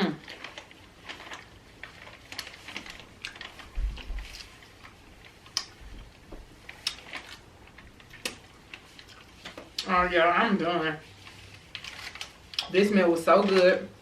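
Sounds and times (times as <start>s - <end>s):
chewing and lip smacks: 5.4s - 5.8s.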